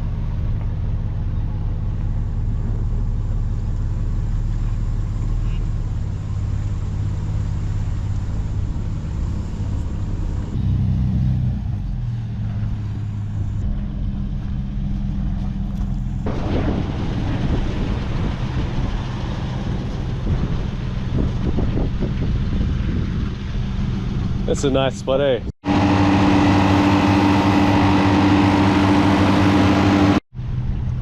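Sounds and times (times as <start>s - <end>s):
vehicle engine running: 0.0s - 31.0s
tyre and wind noise: 11.4s - 24.6s.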